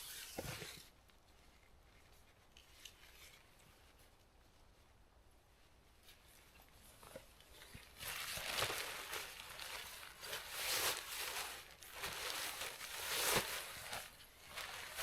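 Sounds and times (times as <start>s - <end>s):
crinkly rustling of camping gear: 6.0s - 15.0s.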